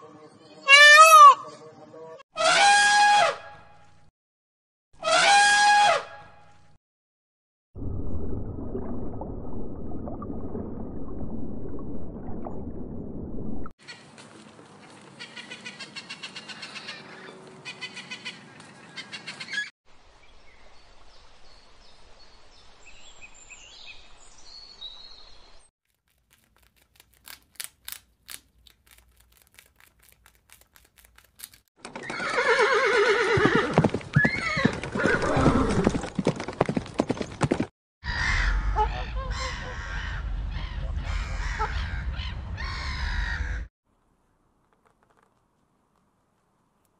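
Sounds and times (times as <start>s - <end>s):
rat eating with sharp clicks: 25.9s - 31.7s
horse whinnying: 32.0s - 36.0s.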